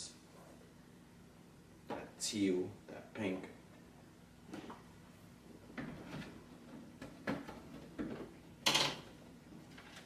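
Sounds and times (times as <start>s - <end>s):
plastic boxes knocking and clicking: 6.8s - 9.1s.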